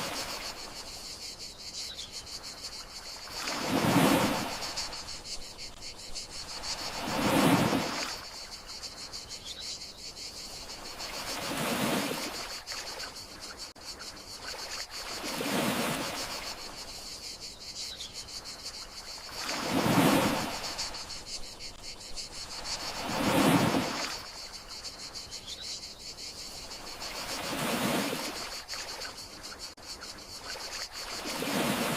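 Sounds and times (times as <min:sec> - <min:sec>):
sea waves washing ashore: 0:00.0 - 0:01.0, 0:02.8 - 0:09.0, 0:10.6 - 0:13.1, 0:14.4 - 0:17.0, 0:18.8 - 0:24.7, 0:26.6 - 0:29.5, 0:30.4 - 0:31.9
crickets chirping: 0:00.0 - 0:31.9.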